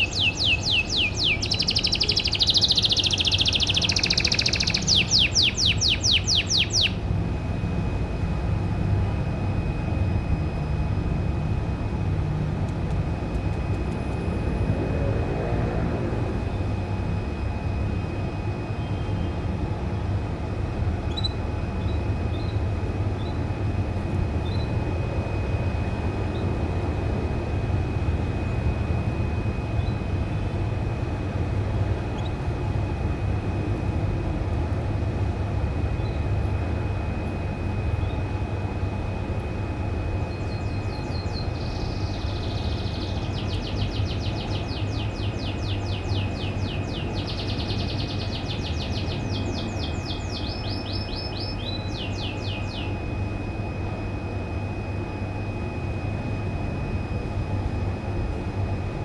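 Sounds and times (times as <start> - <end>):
canary singing trills: 0.0 - 7.1, 21.0 - 23.5, 24.4 - 24.8, 29.8 - 30.1, 31.9 - 32.6, 40.3 - 53.1
steady low rumble: 4.8 - 59.0.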